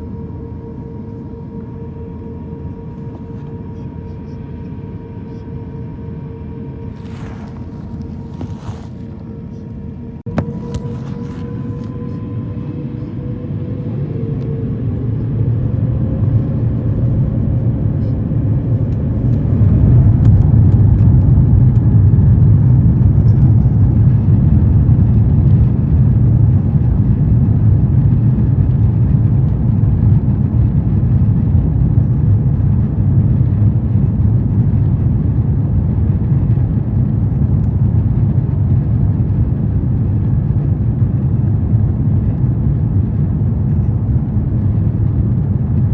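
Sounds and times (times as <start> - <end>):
jet engines spooling up: 0.0 - 24.4
loud low engine roar: 0.0 - 45.9.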